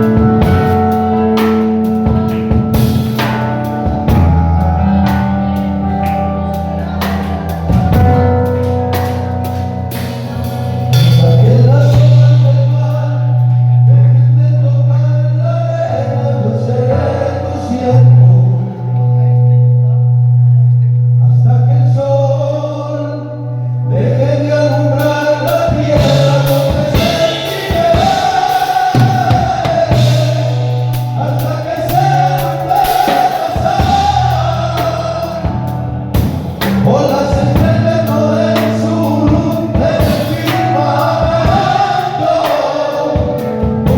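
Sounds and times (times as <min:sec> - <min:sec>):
band with bass and drums: 0:00.0 - 0:14.4, 0:24.8 - 0:43.9
voices singing: 0:24.0 - 0:43.9.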